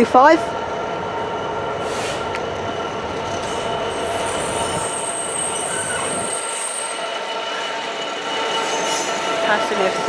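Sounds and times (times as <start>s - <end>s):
freight wagons rumbling: 1.9s - 7.0s
train wheels squealing: 3.1s - 10.0s.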